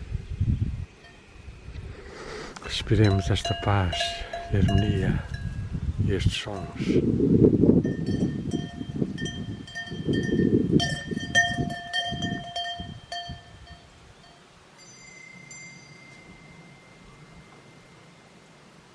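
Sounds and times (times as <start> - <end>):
cattle bells ringing: 2.7 - 5.6, 6.4 - 7.0, 7.8 - 18.5
faint high steady tone: 7.9 - 18.8.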